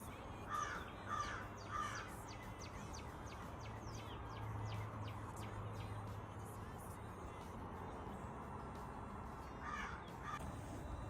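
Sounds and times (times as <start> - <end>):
small birds chirping: 0.0 - 7.5, 9.4 - 10.4
crow cawing: 0.5 - 2.1, 9.6 - 10.4.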